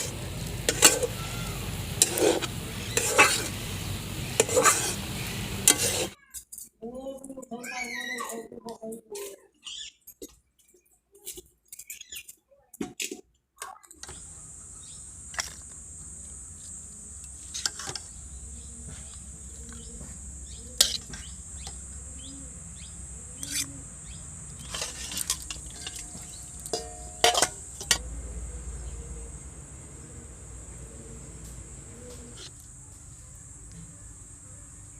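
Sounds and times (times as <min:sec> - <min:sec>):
bird chirps: 0:09.6 - 0:10.2, 0:14.0 - 0:15.2, 0:18.0 - 0:24.7
high-pitched insect drone: 0:14.1 - 0:32.5.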